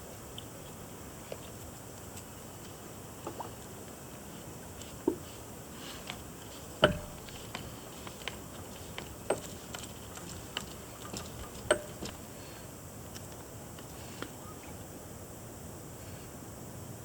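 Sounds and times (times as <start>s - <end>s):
clicks and knocks on plumbing: 6.8s - 12.2s.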